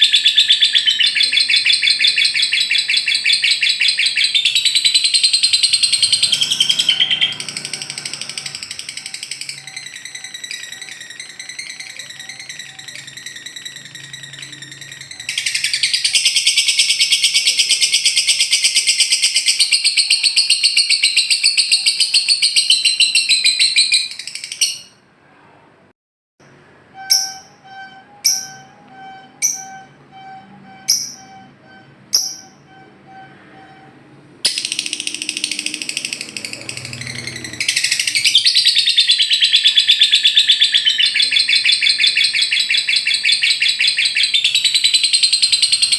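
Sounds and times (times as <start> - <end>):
bird fast chattering trill: 0.0 - 24.9, 34.5 - 45.9.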